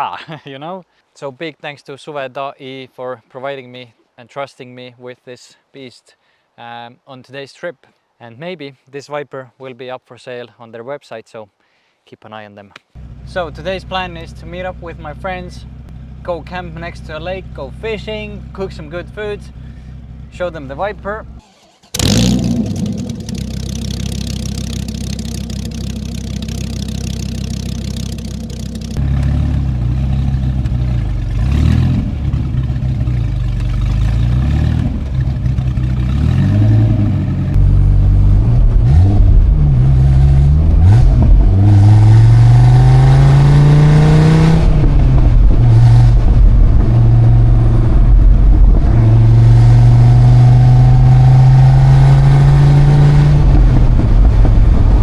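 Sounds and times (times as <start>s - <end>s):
car engine revving: 21.6s - 54.6s.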